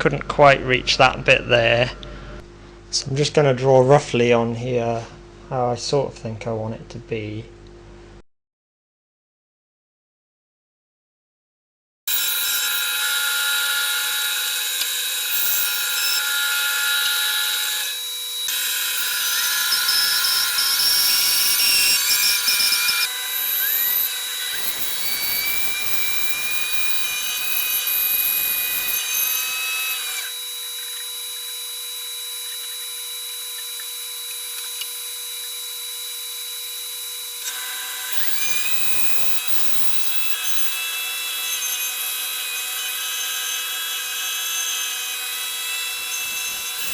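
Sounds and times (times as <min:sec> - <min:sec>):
bandsaw cutting wood: 0:12.1 - 0:35.7, 0:37.4 - 0:46.9
bandsaw motor hum: 0:12.1 - 0:46.9.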